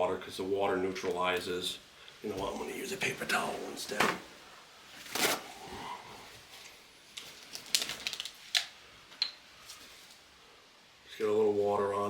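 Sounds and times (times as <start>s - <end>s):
paper towel rustling: 2.2s - 10.3s
paper towel crackling: 2.3s - 10.3s.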